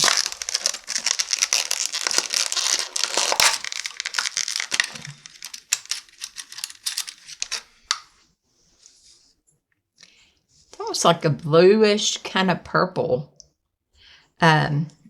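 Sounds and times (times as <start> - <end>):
plastic packaging crinkling and tearing: 0.0 - 8.1
rustling: 0.0 - 9.2.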